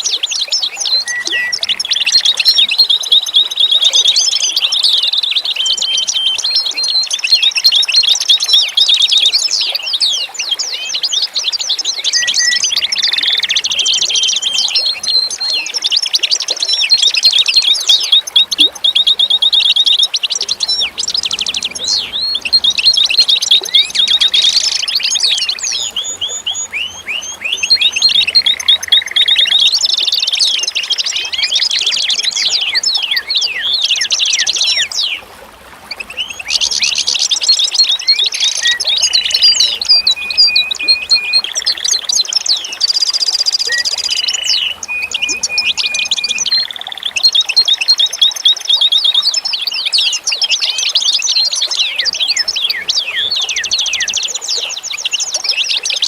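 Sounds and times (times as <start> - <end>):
small birds chirping and trilling: 0.0 - 35.2, 35.9 - 56.0.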